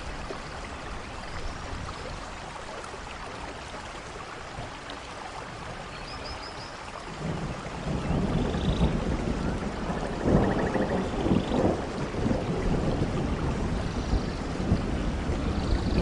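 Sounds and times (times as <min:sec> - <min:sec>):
steady rain: 0:00.0 - 0:16.0
thunder rumbling: 0:07.2 - 0:16.0.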